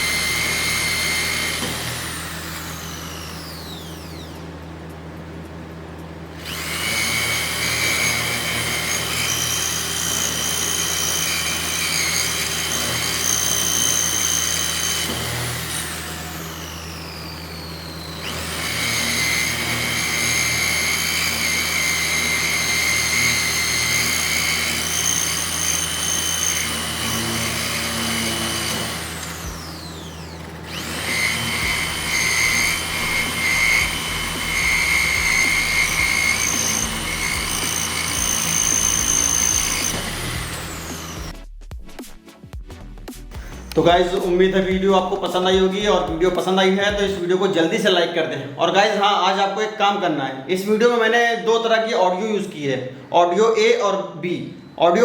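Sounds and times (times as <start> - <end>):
rotary drill motor whining: 0.0 - 4.7, 6.3 - 41.4.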